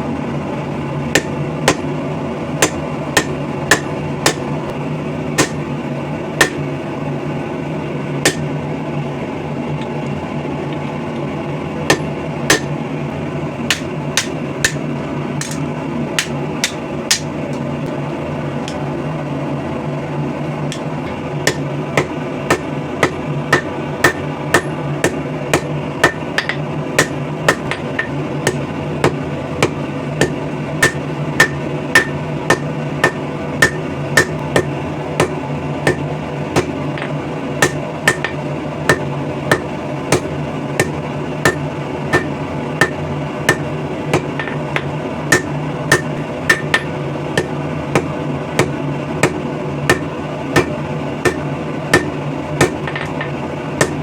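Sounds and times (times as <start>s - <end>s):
steady background hum: 0.0s - 54.0s
hammer striking steel on anvil: 1.1s - 1.9s, 2.6s - 4.5s, 5.4s - 5.6s, 6.4s - 6.6s, 8.2s - 8.5s, 11.9s - 12.7s, 13.7s - 14.8s, 15.4s - 17.4s, 20.7s - 54.0s.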